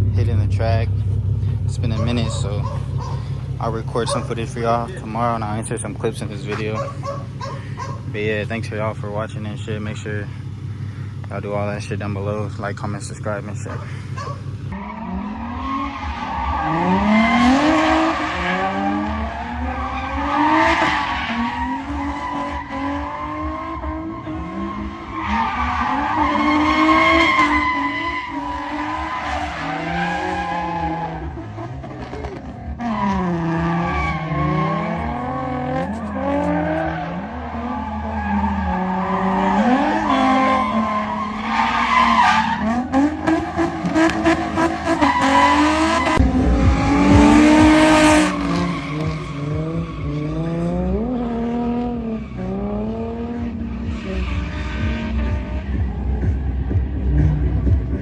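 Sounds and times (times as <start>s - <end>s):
car engine revving: 0.0s - 58.0s
tires squealing: 0.0s - 58.0s.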